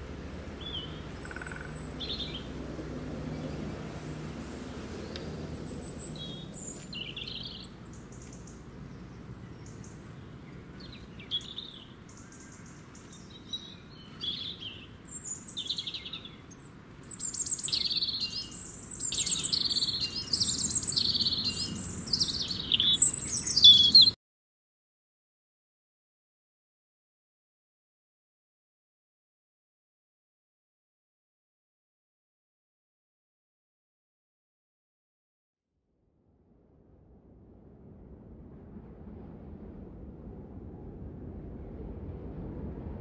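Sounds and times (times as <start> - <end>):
faint low rumble: 0.0 - 23.4, 35.9 - 43.0
birds chirping and singing: 0.6 - 2.5, 5.0 - 24.2.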